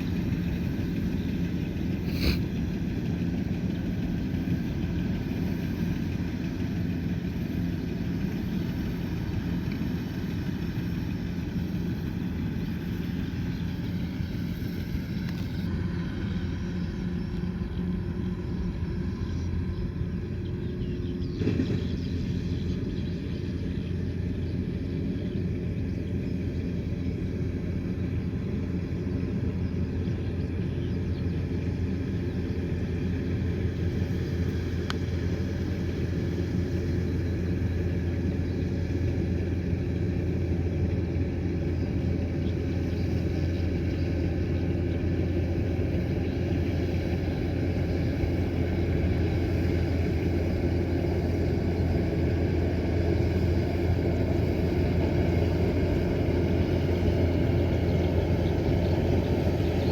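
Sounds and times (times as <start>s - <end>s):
combine harvester diesel engine: 0.0s - 59.9s.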